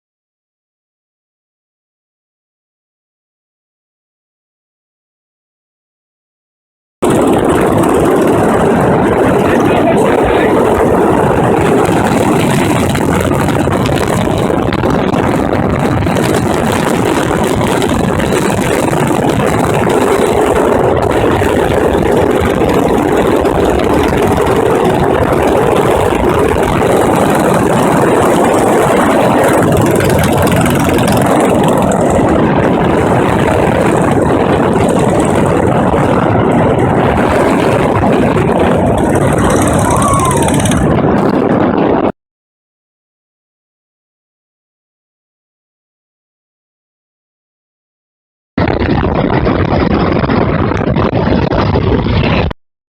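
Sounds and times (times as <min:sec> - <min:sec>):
motorcycle engine running: 0:07.0 - 0:42.1.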